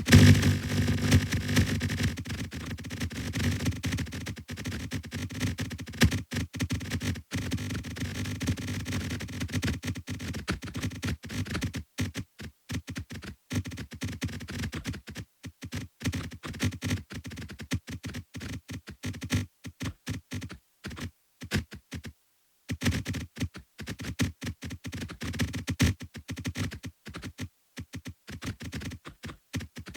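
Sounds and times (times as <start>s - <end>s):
electronic blips and crackles: 0.0s - 4.0s.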